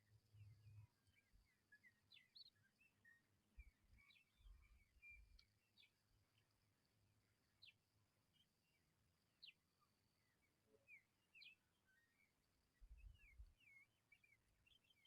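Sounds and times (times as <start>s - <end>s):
faint high bird chirps: 0.0s - 6.4s, 9.4s - 15.0s.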